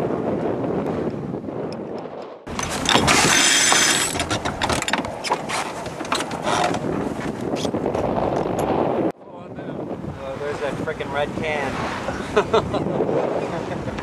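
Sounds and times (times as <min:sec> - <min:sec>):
wind on microphone: 0:00.0 - 0:14.0
winch ratcheting: 0:02.5 - 0:07.7.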